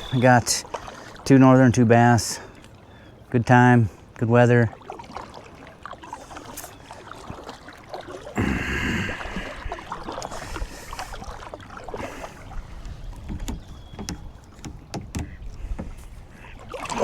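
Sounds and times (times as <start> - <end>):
paddle splashing: 0.0 - 17.0
rush of water: 0.0 - 17.0
small knocks and clicks: 13.2 - 16.1.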